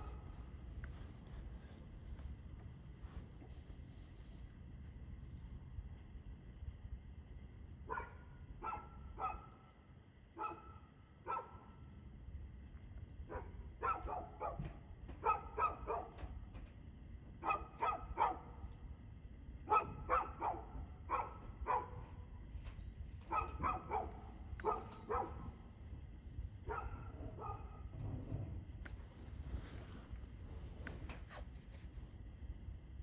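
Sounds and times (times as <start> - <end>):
dog barking: 7.9 - 9.6, 10.4 - 11.7, 13.3 - 16.2, 17.4 - 18.6, 19.7 - 22.1, 23.3 - 25.5, 26.6 - 27.9.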